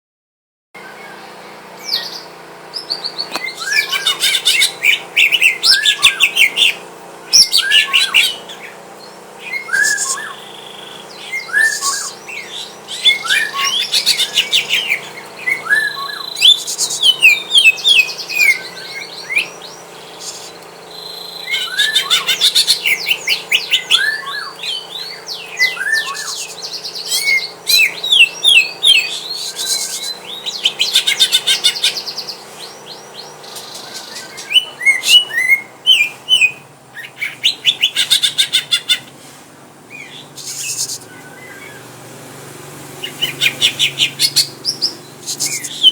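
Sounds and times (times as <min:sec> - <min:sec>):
bird chirping and whistling: 0:01.8 - 0:39.1, 0:39.9 - 0:41.9, 0:43.0 - 0:45.9.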